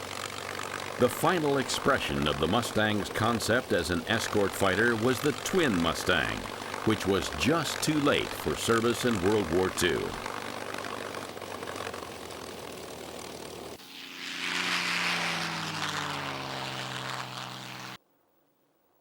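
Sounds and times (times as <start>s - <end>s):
propeller aircraft engine: 0.0s - 18.0s.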